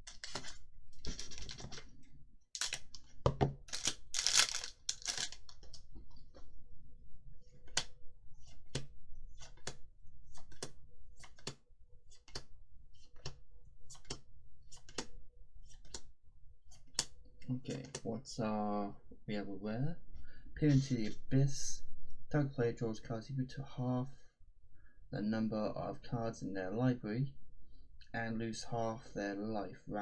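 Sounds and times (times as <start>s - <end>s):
cards flicked clicking: 2.6s - 2.8s, 3.7s - 5.3s
wrapper crinkly rustling: 2.6s - 2.8s, 3.7s - 5.4s.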